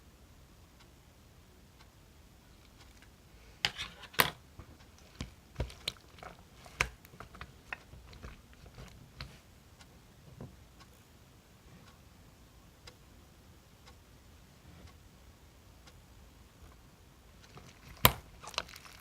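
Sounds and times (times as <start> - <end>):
chewing and biting crunches: 17.5 - 19.0.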